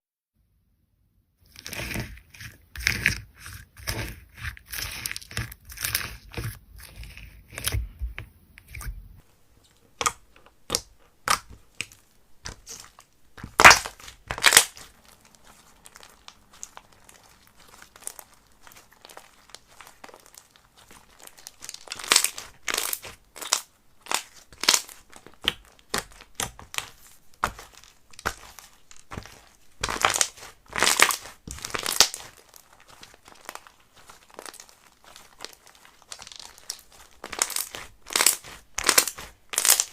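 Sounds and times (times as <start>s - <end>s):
slime squishing: 1.4s - 9.2s, 9.9s - 39.9s
slime crackling and popping: 10.0s - 39.9s.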